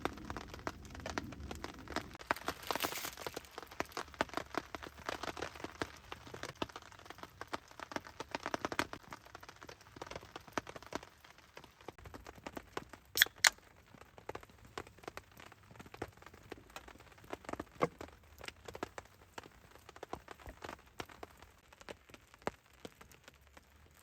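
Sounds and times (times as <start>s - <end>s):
loud wood cracks: 0.0s - 6.6s
campfire crackling: 0.0s - 24.0s
rain: 0.0s - 24.0s.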